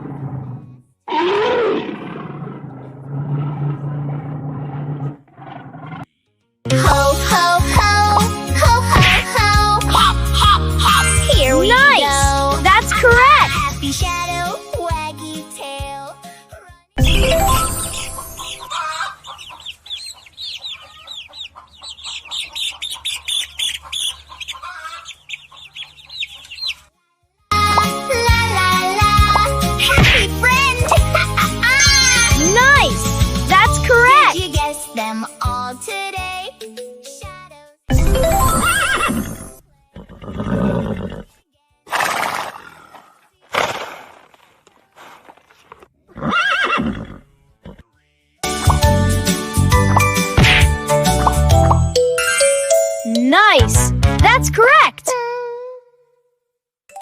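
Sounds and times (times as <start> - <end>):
chickens clucking and cheeping: 17.8 - 27.0
horse whinnying: 38.5 - 41.3, 46.1 - 47.8.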